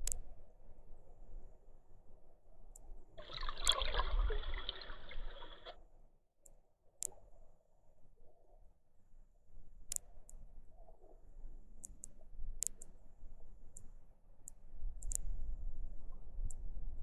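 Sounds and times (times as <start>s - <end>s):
water trickling and splashing: 3.2s - 5.8s
sharp clicks: 11.8s - 12.9s.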